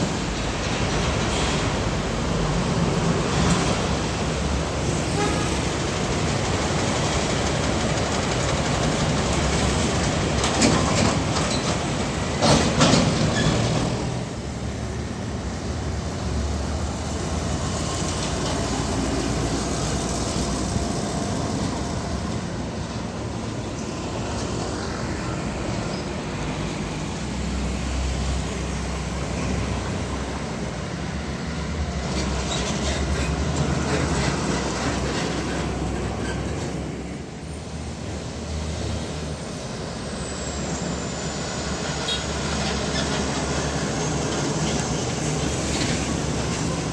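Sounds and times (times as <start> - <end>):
trucks driving past: 0.0 - 46.9.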